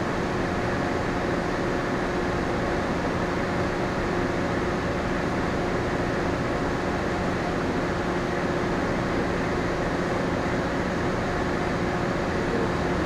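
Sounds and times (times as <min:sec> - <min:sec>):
ship machinery hum: 0:00.0 - 0:13.0.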